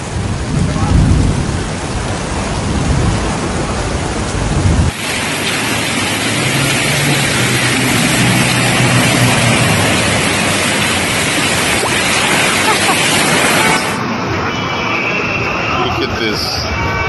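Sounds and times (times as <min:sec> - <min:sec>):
deep rumble: 0:00.0 - 0:05.0
heavy rain: 0:00.0 - 0:17.0.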